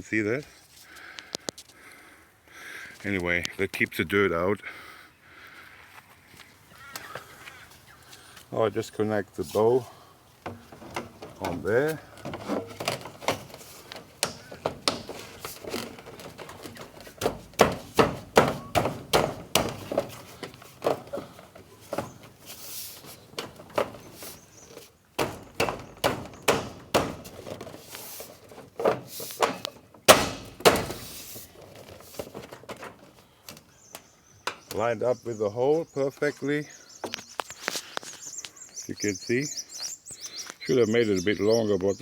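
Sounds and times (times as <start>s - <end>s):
knocks and thuds on downpipe: 10.4s - 33.6s.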